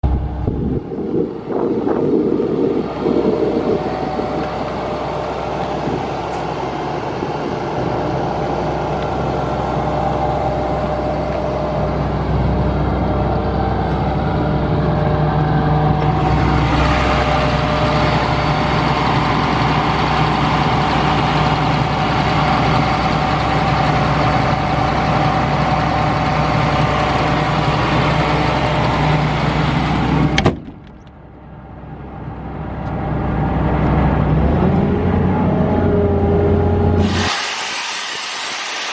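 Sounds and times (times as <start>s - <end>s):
diesel engine running: 0.0s - 38.7s
air compressor hiss: 37.0s - 38.9s.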